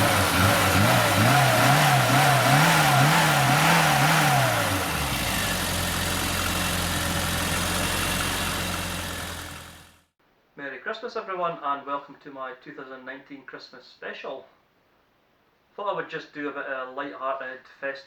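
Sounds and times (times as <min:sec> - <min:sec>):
car engine revving: 0:00.0 - 0:10.0
car engine idling: 0:00.0 - 0:10.1.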